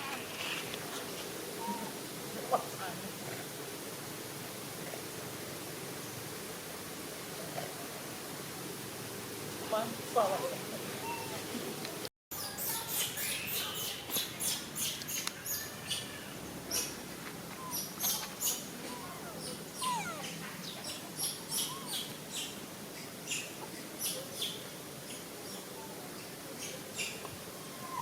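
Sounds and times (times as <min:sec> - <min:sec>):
outdoor background hiss: 0:00.0 - 0:28.0
high animal chirps: 0:17.6 - 0:22.1.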